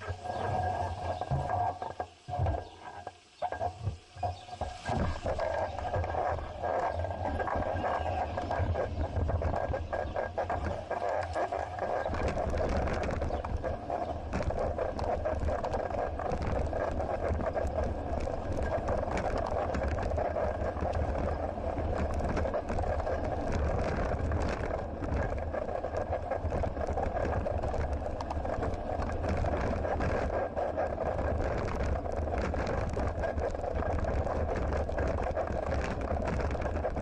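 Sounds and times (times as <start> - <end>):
bicycle tyres on road: 0.0 - 37.0
wind rumble: 0.0 - 37.0
bicycle clicks and rattles: 8.2 - 37.0.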